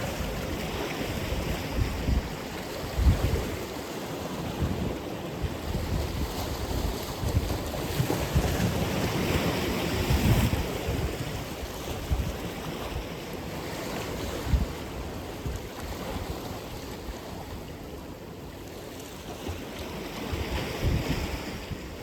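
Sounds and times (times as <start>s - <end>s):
wind buffeting microphone: 0.0s - 13.2s, 13.8s - 17.7s, 20.1s - 22.0s
ocean surf breaking: 0.0s - 15.0s.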